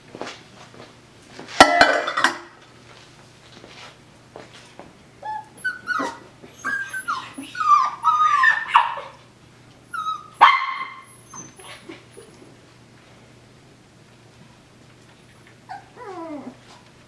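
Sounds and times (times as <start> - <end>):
puppy yelp: 5.2 - 9.2, 9.9 - 12.3, 15.7 - 16.6
puppies yipping and whining: 5.2 - 12.6, 15.3 - 16.8.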